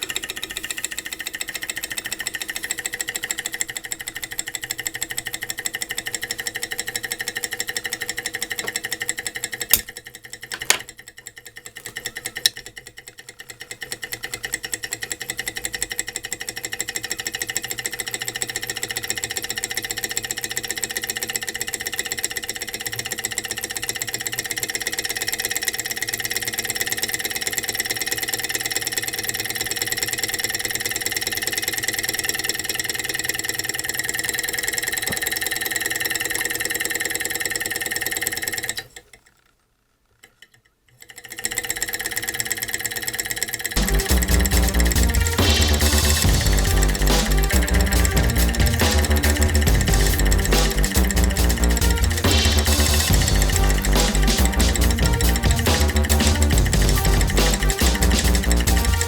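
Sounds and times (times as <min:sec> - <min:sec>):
stirling engine clattering: 0:43.6 - 0:59.0.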